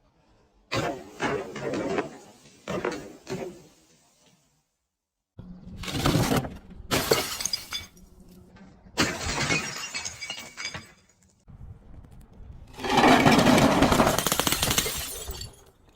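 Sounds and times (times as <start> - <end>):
glass bottles shattering: 6.9 - 8.1, 9.0 - 11.2, 12.9 - 15.7.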